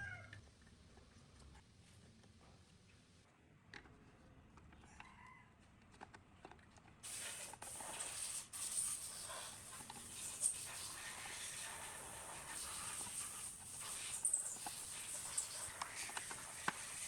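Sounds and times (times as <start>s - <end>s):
high hiss of spraying: 7.0s - 17.0s.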